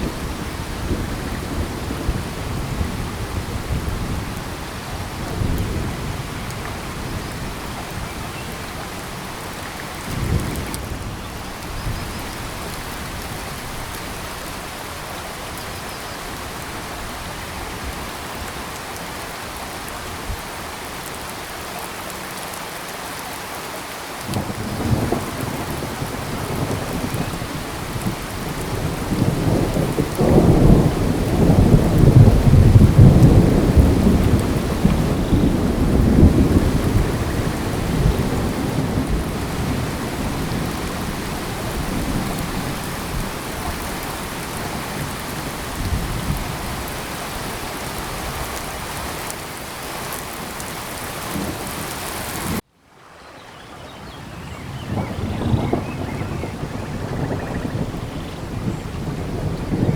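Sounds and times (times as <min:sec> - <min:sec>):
steady rain: 0:00.0 - 0:59.9
rolling thunder: 0:24.3 - 0:46.9, 0:54.6 - 0:59.9.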